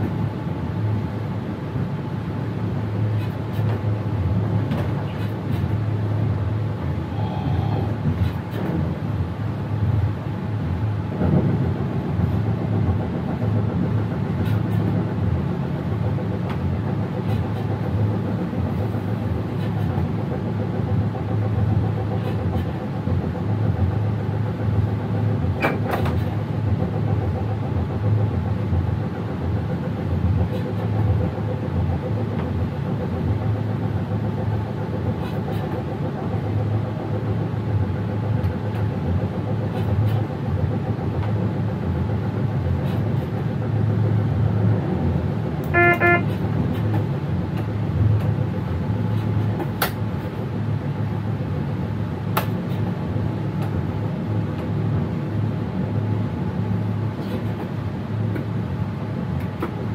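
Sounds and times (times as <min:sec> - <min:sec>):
electric train low rumble: 0:00.0 - 0:59.9
pulsed signal tone: 0:45.7 - 0:46.3.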